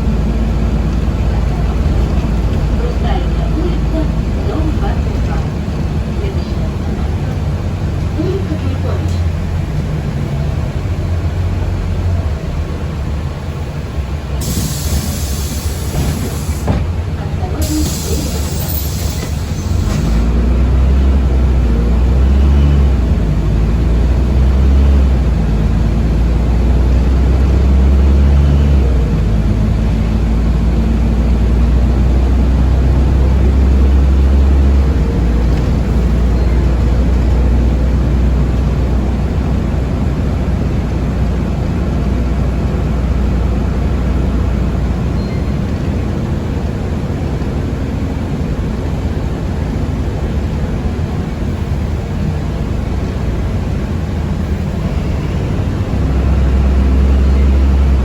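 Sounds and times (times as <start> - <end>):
bus engine drone: 0.0 - 58.0
road rumble: 0.0 - 58.0
air hiss: 14.4 - 16.8, 17.6 - 20.3.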